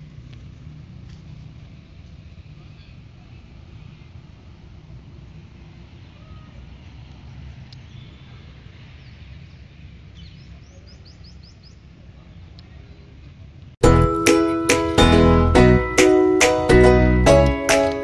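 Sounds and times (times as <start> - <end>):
low rumble of outdoor ambience: 0.0 - 14.1
bird chirping: 9.0 - 12.6.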